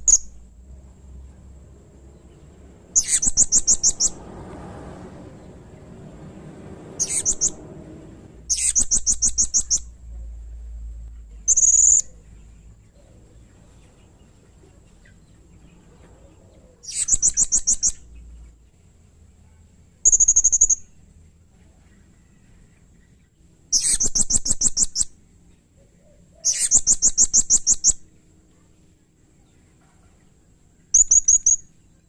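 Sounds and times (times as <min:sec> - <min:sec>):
parrot trilling: 0:02.9 - 0:04.2, 0:07.0 - 0:07.6
parrot squeaks: 0:03.0 - 0:04.2, 0:07.0 - 0:07.6, 0:08.5 - 0:09.8, 0:16.8 - 0:18.0, 0:23.7 - 0:25.1, 0:26.4 - 0:28.0, 0:31.0 - 0:31.6.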